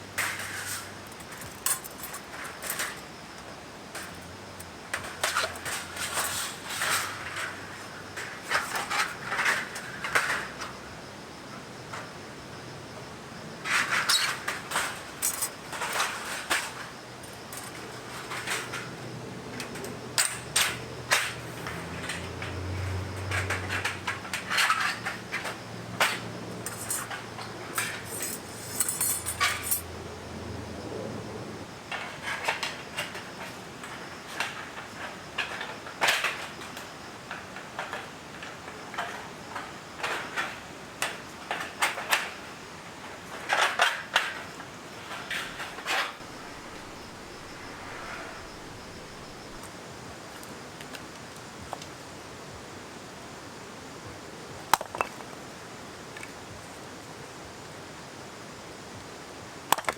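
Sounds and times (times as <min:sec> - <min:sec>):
clinks and clatter of handling: 0:00.2 - 0:07.6, 0:13.7 - 0:18.9, 0:23.3 - 0:29.9
low hum: 0:46.2 - 0:49.7.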